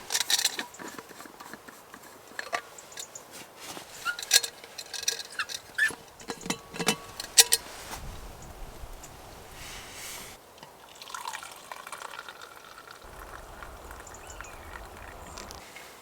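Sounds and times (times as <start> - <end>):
soft low rustle: 5.6 - 10.4.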